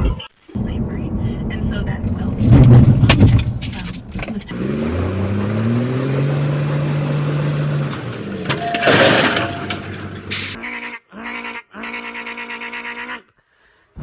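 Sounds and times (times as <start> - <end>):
car engine accelerating: 4.3 - 10.6.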